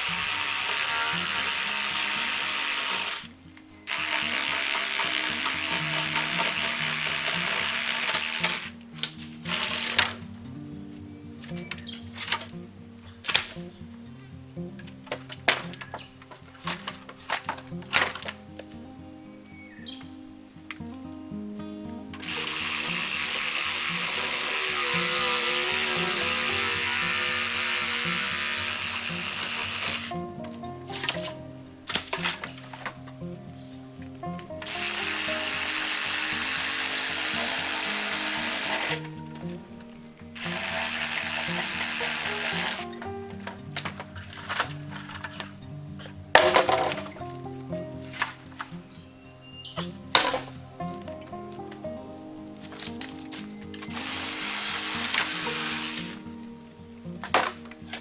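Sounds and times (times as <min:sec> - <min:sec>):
reciprocating saw cutting bamboo: 0:00.0 - 0:03.3, 0:03.9 - 0:10.4, 0:22.2 - 0:30.2, 0:30.9 - 0:32.9, 0:34.6 - 0:39.6, 0:40.4 - 0:45.5, 0:53.8 - 0:56.2
background music: 0:00.0 - 0:58.0
sharp snap: 0:13.2 - 0:13.7.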